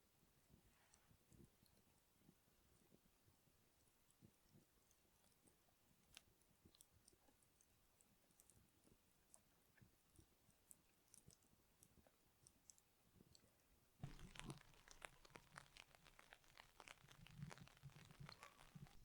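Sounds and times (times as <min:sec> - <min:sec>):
chewing crunchy food: 0:04.1 - 0:19.0
faint clicks: 0:14.0 - 0:19.0.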